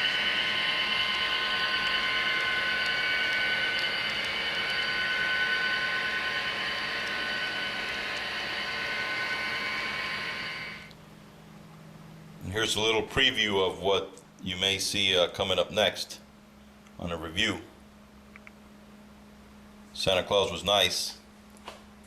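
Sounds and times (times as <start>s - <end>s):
model train mechanical whine: 0.0s - 10.9s.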